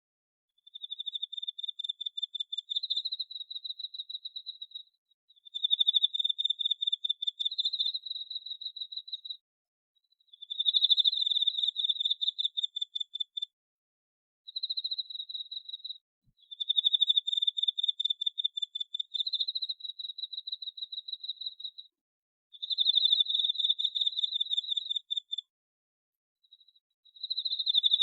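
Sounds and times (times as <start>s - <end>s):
cricket trilling: 10.4s - 13.5s, 14.6s - 21.9s, 22.6s - 25.5s, 27.2s - 28.0s.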